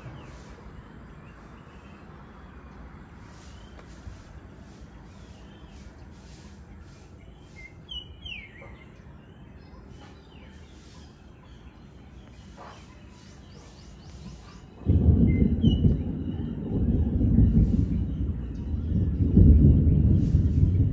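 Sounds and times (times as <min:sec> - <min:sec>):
bird chirps: 0:00.0 - 0:20.9
low background rumble: 0:14.8 - 0:20.9.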